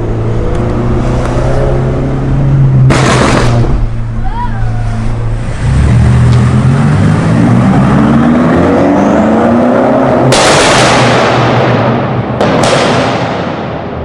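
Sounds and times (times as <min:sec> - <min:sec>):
car engine accelerating hard: 0:05.0 - 0:11.6.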